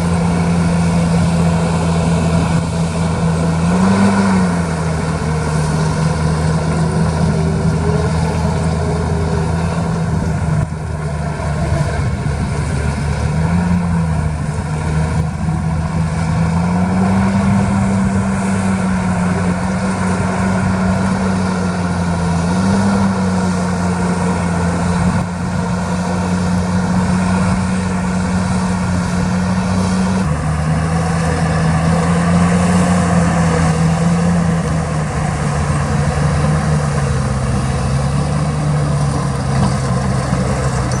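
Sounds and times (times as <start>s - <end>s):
heavy diesel engine under load: 0.0s - 41.0s.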